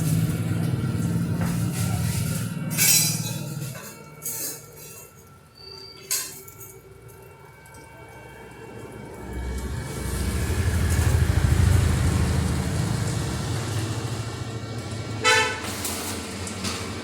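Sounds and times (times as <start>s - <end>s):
vehicle engine rumbling: 0.0s - 4.0s, 8.3s - 16.6s
horn toot: 15.2s - 15.8s.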